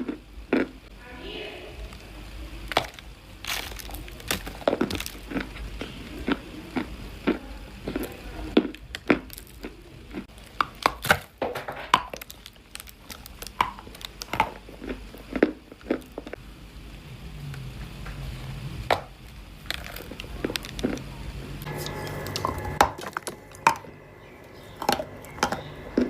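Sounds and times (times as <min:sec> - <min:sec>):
dry clay crunching: 0:02.6 - 0:16.4, 0:19.0 - 0:26.0.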